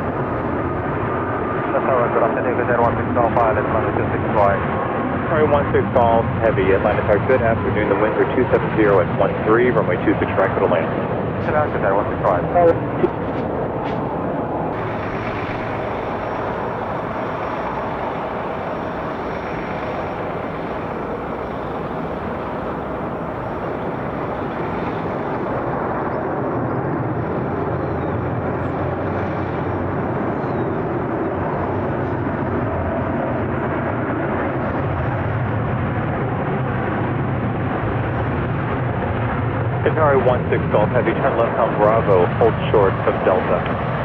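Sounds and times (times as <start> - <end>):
jet engine noise: 0.0 - 44.0.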